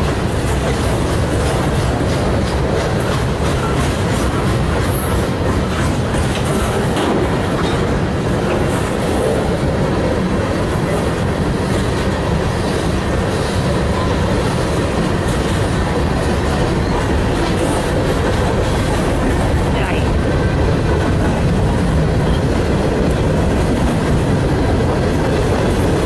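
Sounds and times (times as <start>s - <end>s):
steel wheels rumbling on rails: 0.0s - 26.0s.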